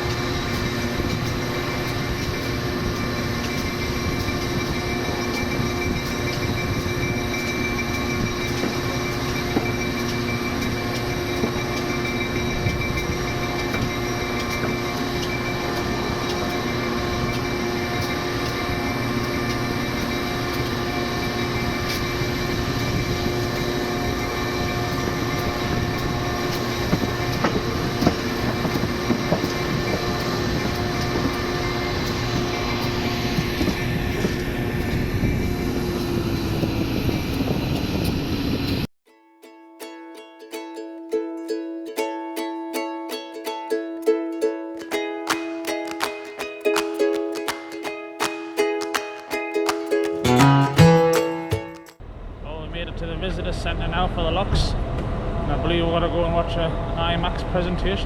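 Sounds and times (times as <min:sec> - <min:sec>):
constant tonal hum: 0:00.0 - 0:38.8
train rolling on track: 0:00.0 - 0:38.9, 0:44.4 - 0:52.0.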